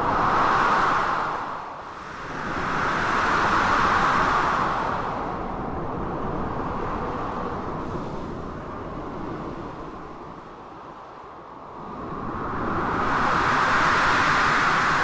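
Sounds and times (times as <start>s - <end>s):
blizzard wind gusting: 12.0s - 15.0s.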